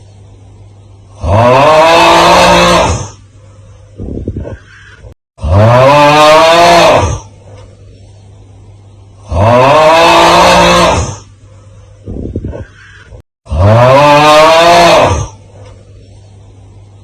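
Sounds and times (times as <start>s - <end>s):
rough drawn-out yell: 12.6s - 15.4s.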